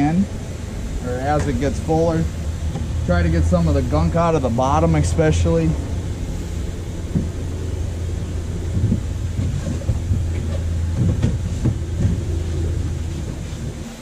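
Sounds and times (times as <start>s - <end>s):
knocks of wiping: 8.7s - 13.7s.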